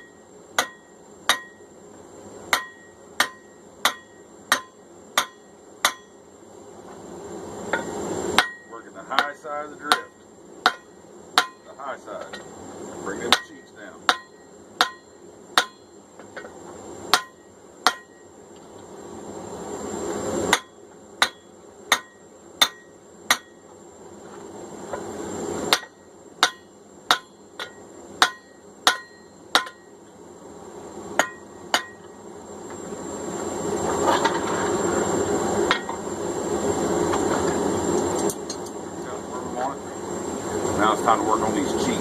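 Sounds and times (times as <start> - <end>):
hammer striking steel on anvil: 0.0 - 1.7, 2.5 - 6.2, 7.7 - 12.5, 13.2 - 15.9, 17.1 - 18.2, 20.5 - 23.6, 25.7 - 29.9, 31.2 - 32.1, 35.7 - 36.0.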